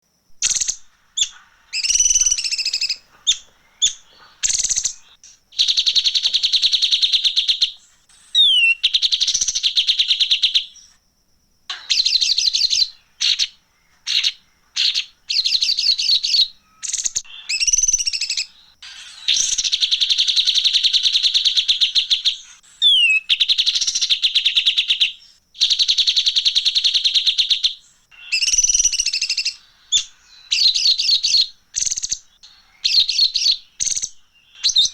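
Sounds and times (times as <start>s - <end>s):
bird chirps: 0.0s - 11.0s, 11.7s - 34.9s
songbird buzzy trills: 0.0s - 34.9s
bird sweeping whistle: 0.4s - 10.6s, 14.1s - 24.9s, 28.2s - 32.2s.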